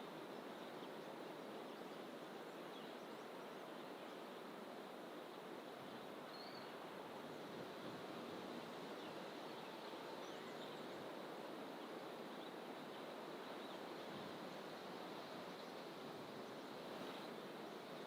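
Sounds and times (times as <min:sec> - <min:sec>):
background rush from bush: 0:00.0 - 0:18.0
faint bird chirps: 0:06.3 - 0:06.8.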